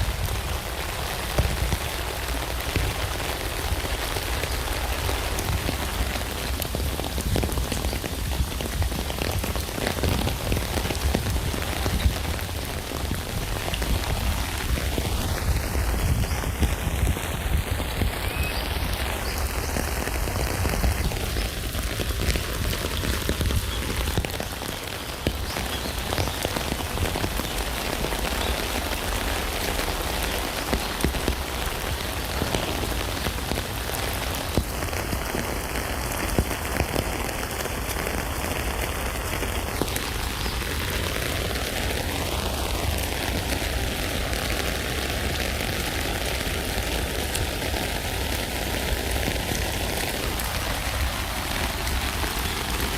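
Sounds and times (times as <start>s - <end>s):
rain pattering on a tent: 0.0s - 52.9s.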